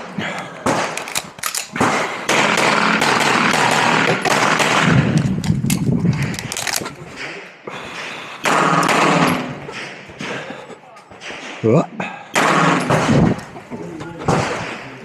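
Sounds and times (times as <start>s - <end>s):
pistol shots in rapid strings: 14.2s - 15.0s.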